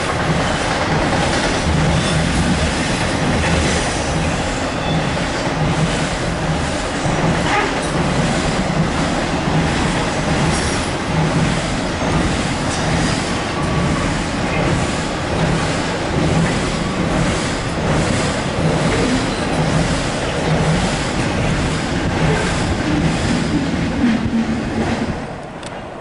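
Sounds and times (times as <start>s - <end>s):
freight train wheels rumbling: 0.0s - 26.0s
low clatter of train: 0.0s - 26.0s.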